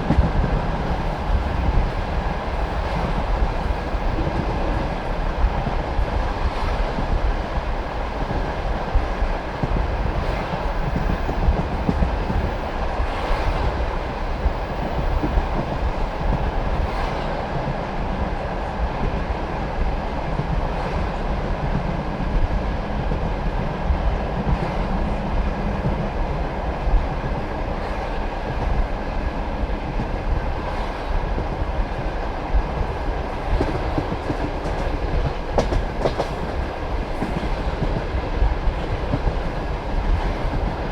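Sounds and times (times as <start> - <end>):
train rumbling on track: 0.0 - 40.9
train wheels clattering over rail joints: 32.8 - 40.9.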